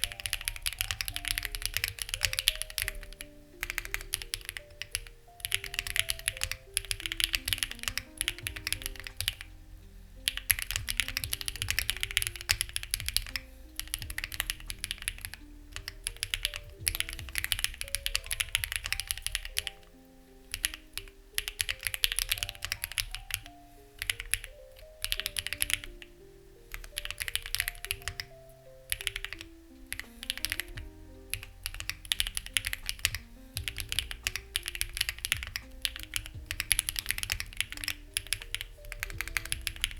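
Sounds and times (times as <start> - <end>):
mechanical keyboard typing: 0.0 - 9.6, 10.2 - 39.9
soft background music: 0.0 - 39.9.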